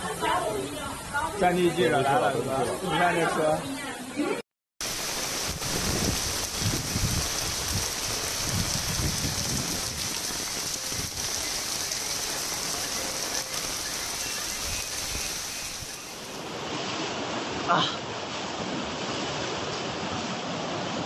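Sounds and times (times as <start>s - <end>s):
heavy rain pouring: 4.8s - 16.4s
low rumbling gusts: 4.9s - 11.4s.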